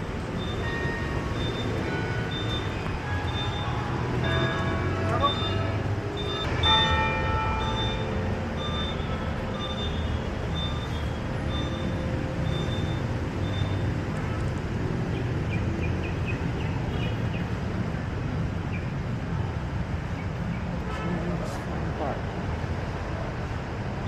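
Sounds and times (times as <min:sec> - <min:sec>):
traffic engine rumble: 0:00.0 - 0:24.0
high short beeps: 0:05.1 - 0:07.0.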